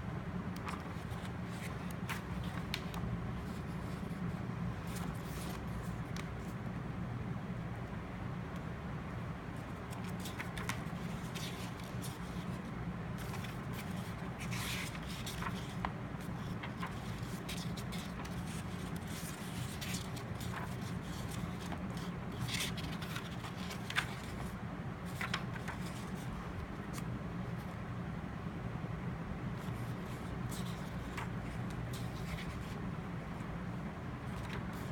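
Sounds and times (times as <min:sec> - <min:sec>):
steady low hum: 0:00.0 - 0:34.9
paper rustling and scraping: 0:00.6 - 0:06.6, 0:09.8 - 0:27.7, 0:29.6 - 0:32.8, 0:34.2 - 0:34.9.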